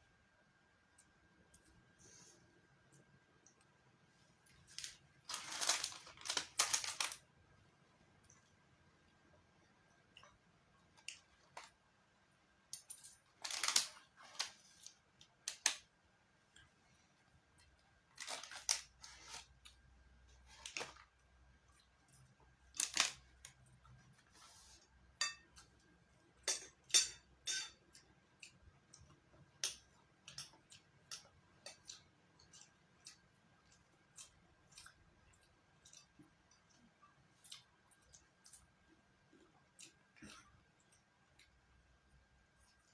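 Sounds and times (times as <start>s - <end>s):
utensils and containers clicking: 12.7s - 14.6s.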